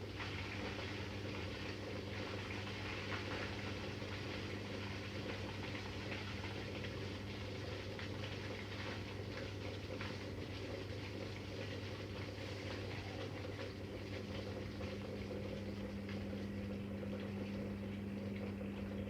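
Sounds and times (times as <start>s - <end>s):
washing machine motor hum: 0.0s - 19.0s.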